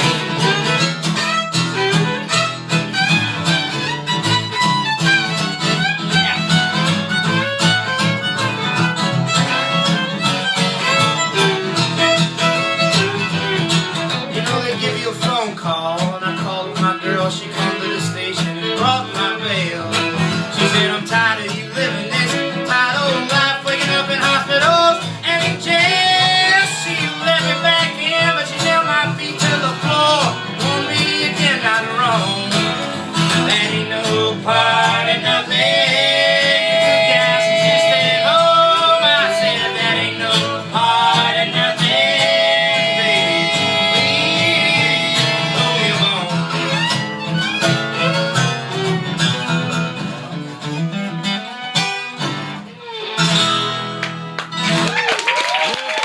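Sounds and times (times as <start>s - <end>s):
fiddle: 0.0s - 55.1s
strummed guitar: 0.0s - 55.1s
steady bass: 29.1s - 50.0s.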